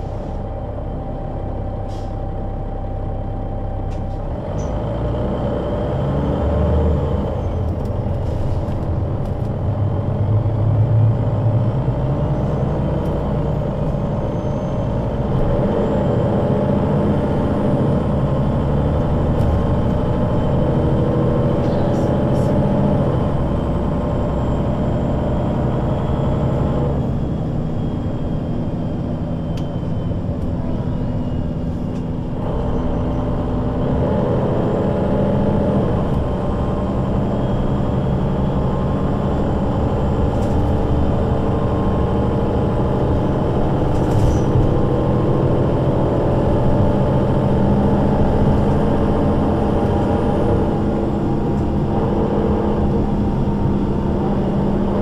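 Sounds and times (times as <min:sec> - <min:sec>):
bus engine driving: 0:00.0 - 0:55.0.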